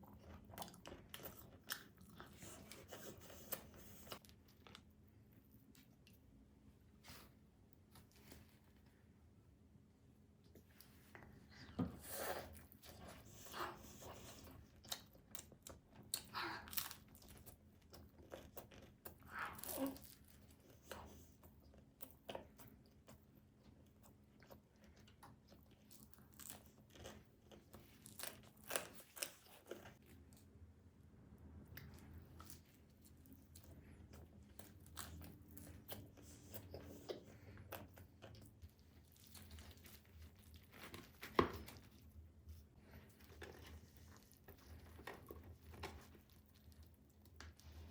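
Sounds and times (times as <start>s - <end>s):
eating crunchy food: 0.0s - 5.0s, 12.0s - 30.5s, 31.7s - 47.9s.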